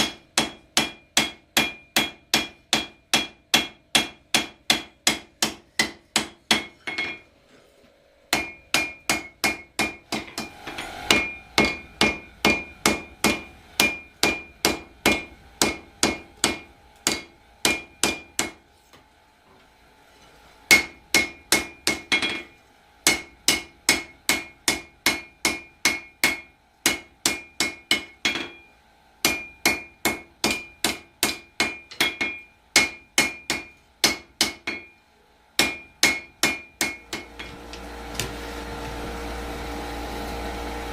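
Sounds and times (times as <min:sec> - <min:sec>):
hammer forging steel on anvil: 0:00.0 - 0:07.3, 0:08.3 - 0:18.6, 0:20.7 - 0:35.0, 0:35.6 - 0:39.0
anvil ringing: 0:05.8 - 0:07.3, 0:08.3 - 0:18.5, 0:20.7 - 0:35.0.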